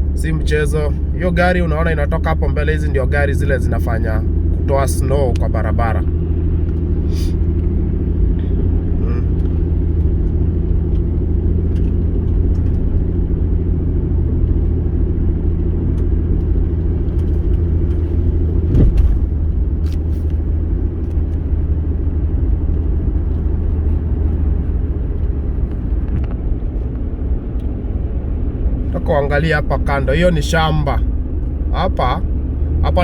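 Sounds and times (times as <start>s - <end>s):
engine and tyre rumble: 0.0s - 33.0s
brief thump: 18.6s - 19.4s.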